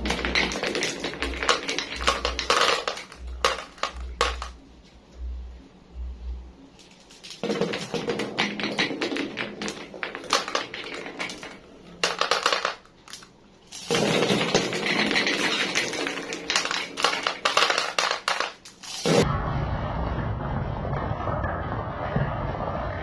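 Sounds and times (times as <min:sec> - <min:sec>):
glass marbles clacking in a marble run: 0:00.0 - 0:04.6, 0:06.8 - 0:19.3
steady low rumble: 0:03.2 - 0:06.8, 0:19.2 - 0:23.0.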